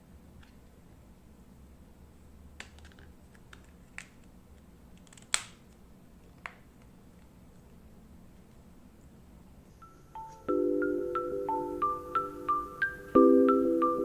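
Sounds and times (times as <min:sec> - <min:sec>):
faint low hum: 0:00.0 - 0:14.0
clicks handling phone packaging: 0:02.6 - 0:04.3.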